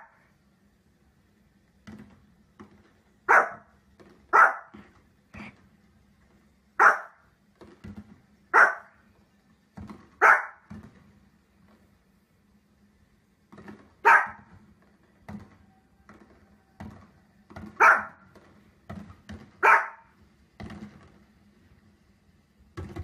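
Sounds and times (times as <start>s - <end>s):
dog barking: 3.3s - 3.7s, 4.3s - 4.8s, 6.8s - 7.2s, 8.5s - 9.0s, 10.2s - 10.7s, 14.0s - 14.5s, 17.8s - 18.2s, 19.6s - 20.1s.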